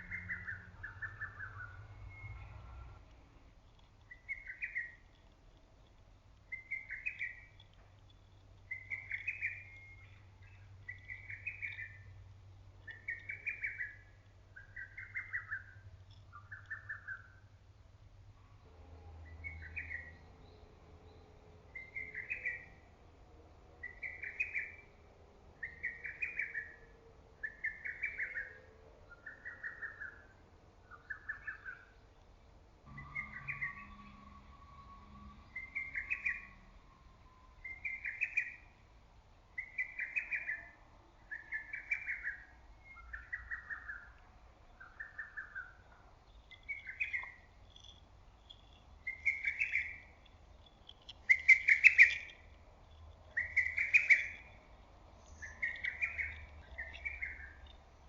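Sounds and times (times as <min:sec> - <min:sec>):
cuckoo singing whistled notes: 0:00.0 - 0:02.7, 0:06.5 - 0:07.6, 0:08.7 - 0:12.1, 0:32.9 - 0:38.7, 0:44.8 - 0:52.5, 0:53.3 - 0:54.6.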